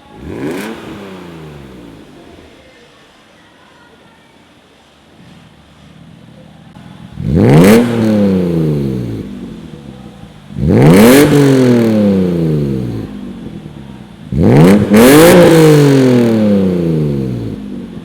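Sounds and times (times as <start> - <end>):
car engine revving: 0.0 - 2.6, 7.0 - 18.0.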